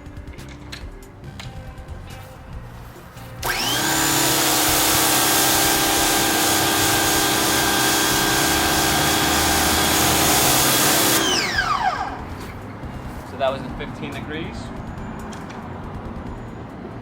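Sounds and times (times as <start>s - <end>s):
pressure washer motor whining: 2.2s - 13.2s
water jet hissing: 3.4s - 12.5s.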